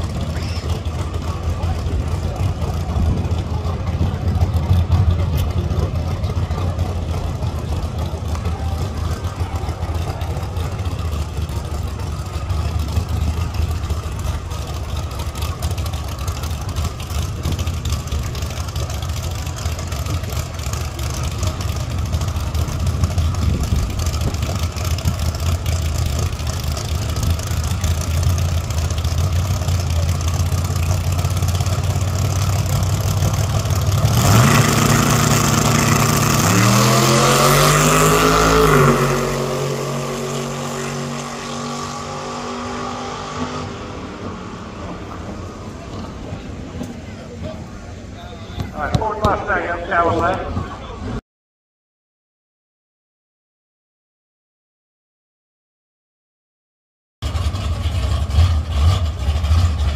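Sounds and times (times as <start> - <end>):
car engine idling: 0.0 - 37.9, 43.9 - 51.0, 57.2 - 59.9.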